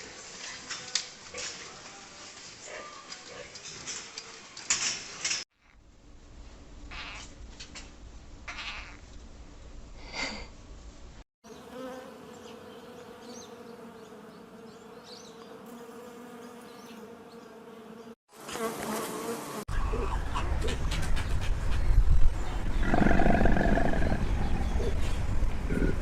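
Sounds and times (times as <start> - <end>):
other animal sounds: 8.5 - 9.0, 19.7 - 26.0
flying insect buzzing: 11.5 - 19.7.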